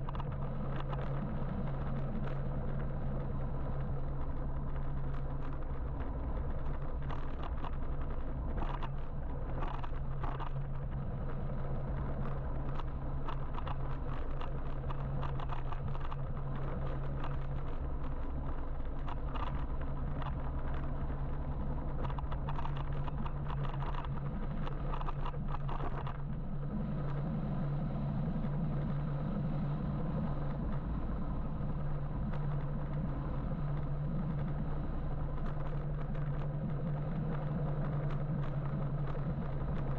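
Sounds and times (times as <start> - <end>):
light crackles and clicks: 0.0 - 39.9
road and traffic noise: 0.0 - 39.9
motorbike low hum: 7.8 - 39.9.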